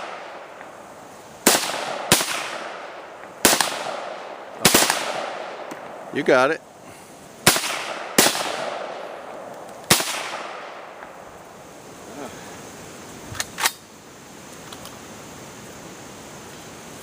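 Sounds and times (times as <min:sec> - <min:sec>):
gunshots with echo: 0:01.4 - 0:05.7, 0:07.4 - 0:09.1.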